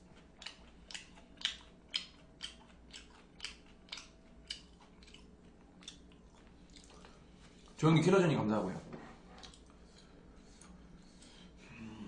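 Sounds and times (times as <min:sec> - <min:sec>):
chewing crispy fried cutlet: 0:00.0 - 0:07.8, 0:09.4 - 0:10.7.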